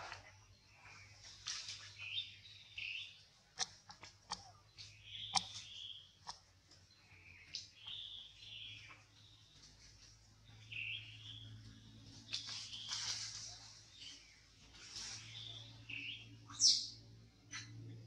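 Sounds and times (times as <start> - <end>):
birds chirping: 0.1 - 18.0.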